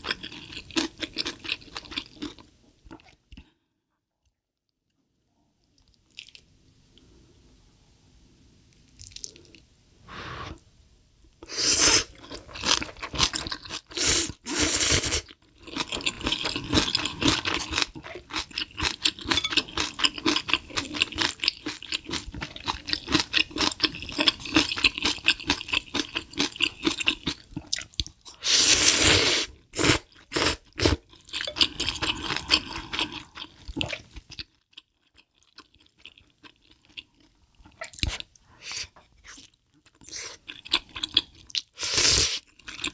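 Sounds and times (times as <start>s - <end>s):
chewing and crunching food: 0.0s - 3.5s, 5.6s - 6.5s, 8.8s - 9.6s, 12.1s - 14.4s, 15.2s - 28.4s, 29.6s - 42.9s.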